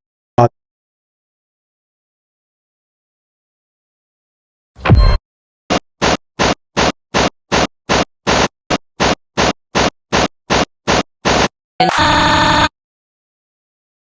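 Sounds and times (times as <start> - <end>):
chopped static bursts: 5.7 - 11.5.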